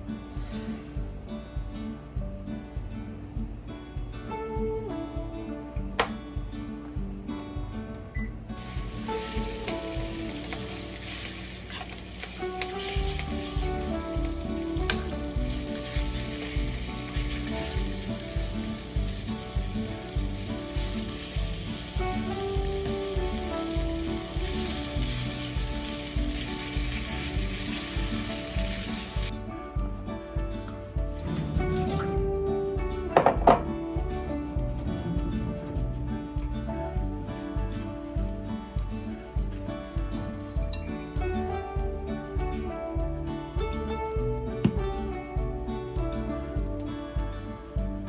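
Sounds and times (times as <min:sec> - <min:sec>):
food sizzling in a pan: 0:08.6 - 0:29.3.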